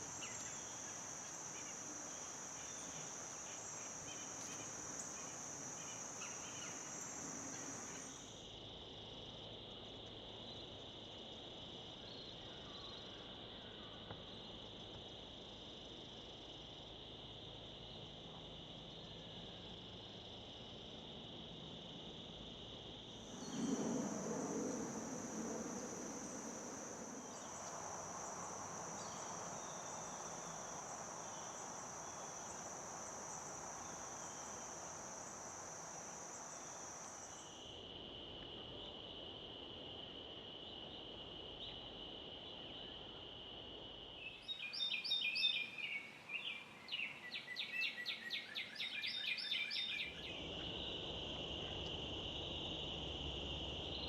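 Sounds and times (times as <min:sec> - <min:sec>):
insects trilling: 0:00.0 - 0:54.0
low rumble: 0:23.2 - 0:29.4.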